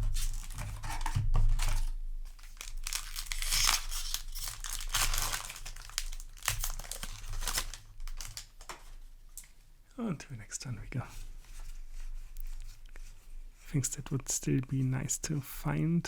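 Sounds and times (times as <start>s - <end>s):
foil wrapper tearing: 0.0s - 8.9s
foil wrapper crinkling: 0.0s - 9.0s.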